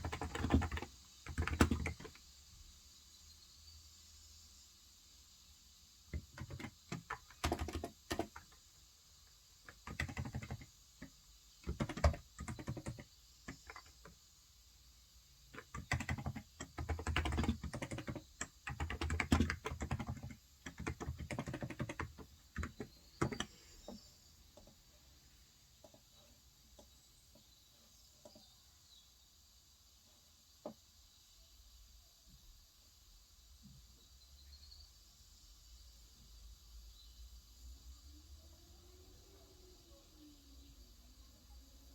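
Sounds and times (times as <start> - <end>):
keyboard typing: 0.0 - 2.2, 6.1 - 8.6, 9.6 - 14.2, 15.5 - 24.7.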